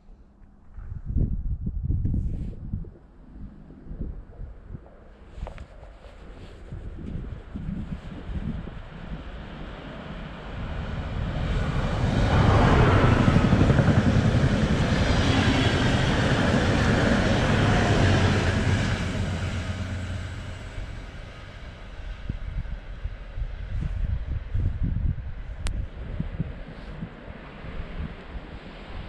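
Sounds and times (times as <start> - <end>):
passenger train rushing past: 8.8 - 23.8.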